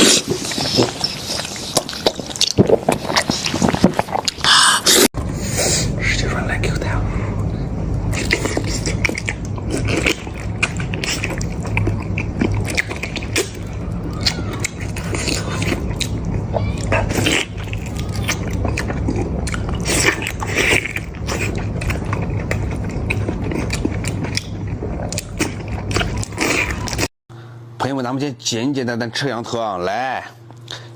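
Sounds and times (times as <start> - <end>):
wet chewing and mouth clicks: 0.0 - 5.1, 8.0 - 27.1.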